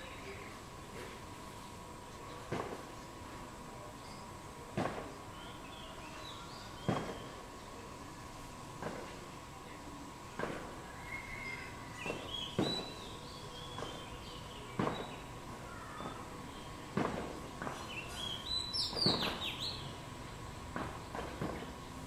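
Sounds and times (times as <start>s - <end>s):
thin steady whine: 0.0s - 22.0s
small birds chirping: 11.0s - 16.9s, 17.6s - 20.0s.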